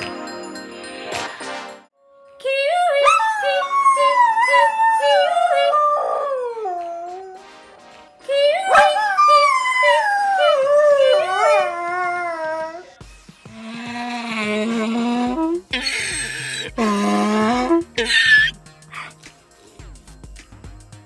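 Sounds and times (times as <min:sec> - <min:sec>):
dog howling: 0:03.0 - 0:07.4, 0:08.6 - 0:13.0.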